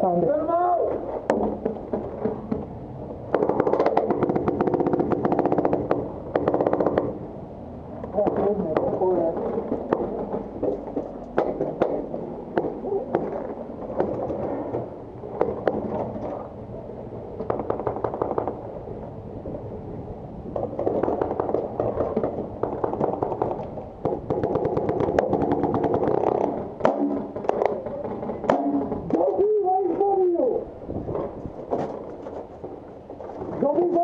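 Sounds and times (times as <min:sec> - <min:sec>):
paintball guns firing: 0:03.3 - 0:07.2, 0:08.2 - 0:16.2, 0:17.4 - 0:18.8, 0:20.6 - 0:29.4.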